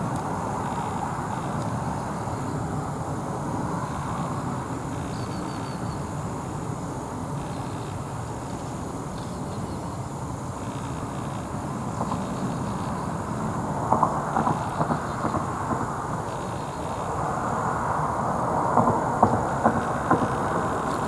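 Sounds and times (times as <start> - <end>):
jet airliner rumbling overhead: 11.1 - 21.0.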